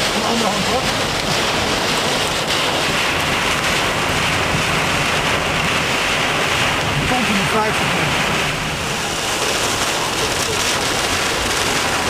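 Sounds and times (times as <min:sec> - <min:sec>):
rain: 0:00.0 - 0:12.0
strong wind rushing: 0:00.0 - 0:12.0
wind buffeting microphone: 0:00.0 - 0:12.0.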